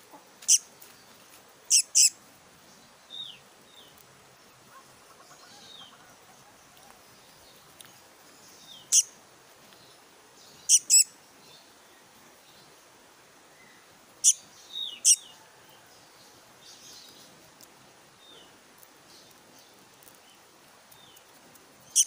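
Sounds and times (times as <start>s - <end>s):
fledgling bird high calls: 1.7s - 2.2s, 8.8s - 9.2s, 10.7s - 11.1s, 14.2s - 15.4s.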